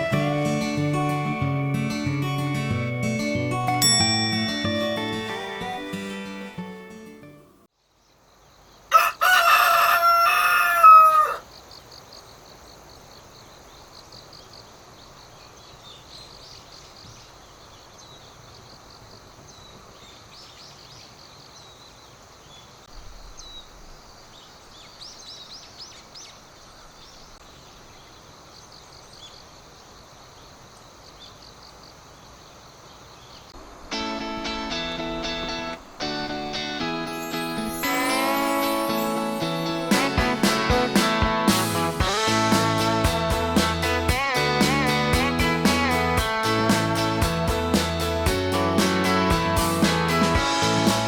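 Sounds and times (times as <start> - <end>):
rooster crowing: 8.9 - 11.5.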